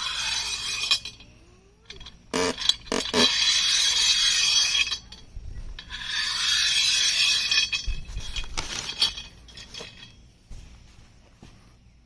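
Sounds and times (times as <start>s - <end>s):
bolts scraping along metal rail: 0.0s - 1.3s, 1.9s - 10.2s
metal clinks and knocks: 0.0s - 10.6s.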